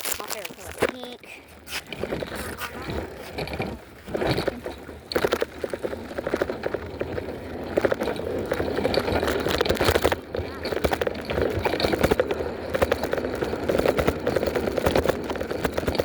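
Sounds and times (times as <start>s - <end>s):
bicycle rattles and clicks: 0.0s - 16.0s
bicycle tyres on concrete: 0.0s - 16.0s.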